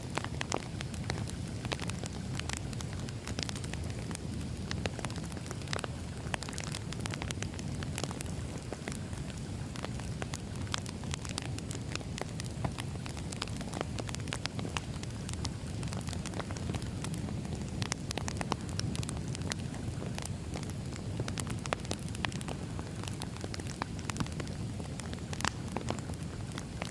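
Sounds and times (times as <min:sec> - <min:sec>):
firewood crackling and popping: 0:00.0 - 0:26.9
low rumble of flames: 0:00.0 - 0:26.9.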